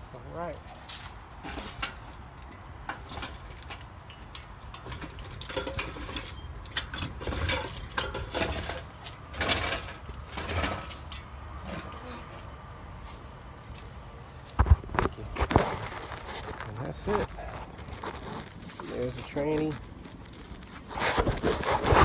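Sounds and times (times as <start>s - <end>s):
metallic clinks and knocks: 3.2s - 11.4s.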